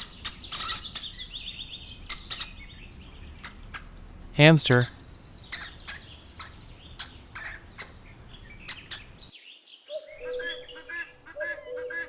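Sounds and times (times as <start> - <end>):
hamster squeaking: 0.0 - 1.2, 4.7 - 8.0
faint steady chirping: 0.0 - 9.3.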